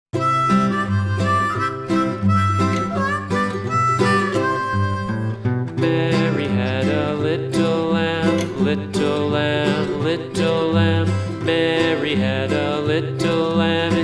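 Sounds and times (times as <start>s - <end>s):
country harmonica music: 0.1s - 14.0s
acoustic guitar picking: 0.2s - 14.0s.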